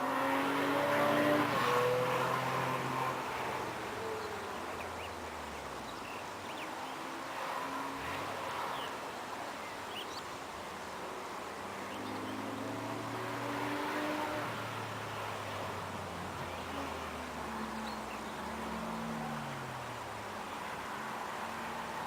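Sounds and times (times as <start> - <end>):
sports car engine passing: 0.0 - 5.7, 11.2 - 22.0.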